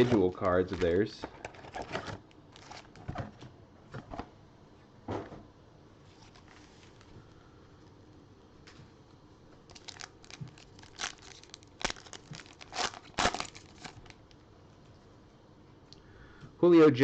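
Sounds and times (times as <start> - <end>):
wrapper tearing and crinkling: 0.0 - 3.0, 9.7 - 14.4.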